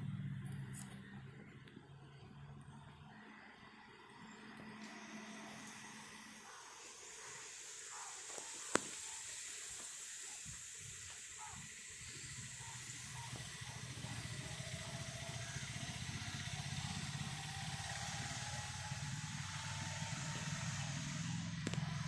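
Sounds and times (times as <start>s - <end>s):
vehicle engine: 0.0s - 22.0s
outdoor hiss: 4.7s - 22.0s.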